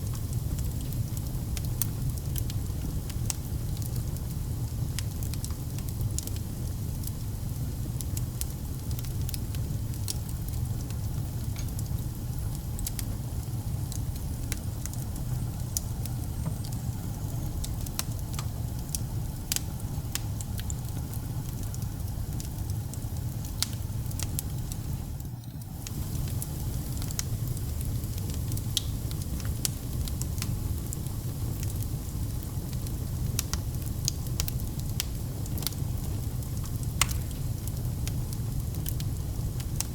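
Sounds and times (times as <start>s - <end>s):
fire rumbling: 0.0s - 39.9s
logs crackling and popping: 0.1s - 39.9s.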